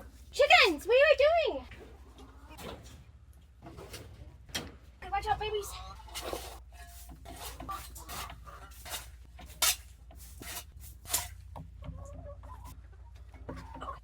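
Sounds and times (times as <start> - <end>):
hens clucking: 0.0 - 4.5, 5.1 - 10.1, 11.6 - 14.0
scraping strokes: 5.9 - 11.5.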